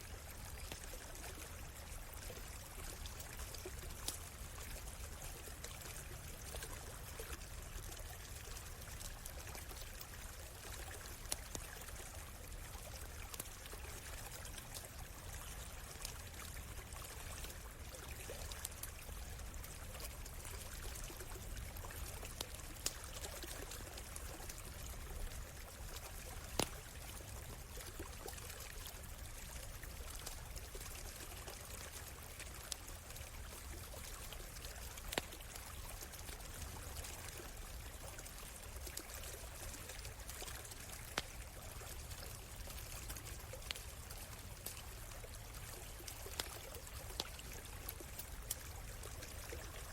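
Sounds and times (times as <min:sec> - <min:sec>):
small stream trickling: 0:00.0 - 0:49.9
campfire crackling pops: 0:24.0 - 0:26.9, 0:35.0 - 0:35.4, 0:46.0 - 0:48.6.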